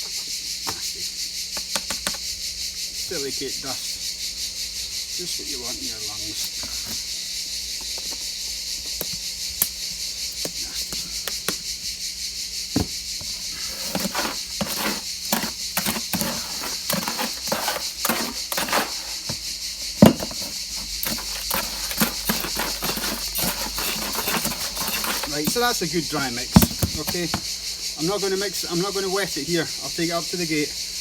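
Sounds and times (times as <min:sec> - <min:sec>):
gritty scraping in a bucket: 0:05.2 - 0:07.1, 0:12.6 - 0:30.2
tool knocking on container: 0:12.8 - 0:27.5.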